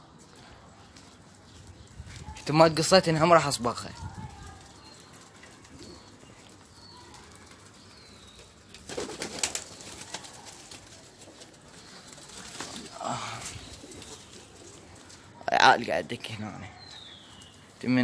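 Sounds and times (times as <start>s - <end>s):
pigeons cooing: 4.0s - 15.4s
wings flapping: 7.4s - 15.3s.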